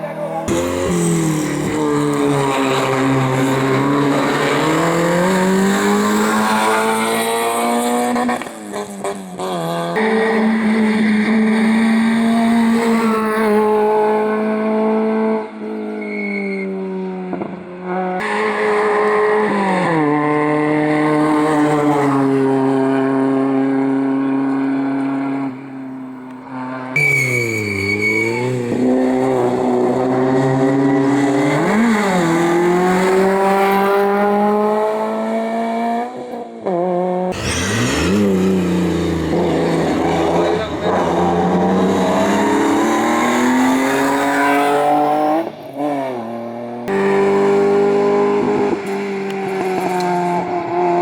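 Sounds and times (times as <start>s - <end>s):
race car engine revving: 0.0s - 15.6s, 26.4s - 51.0s.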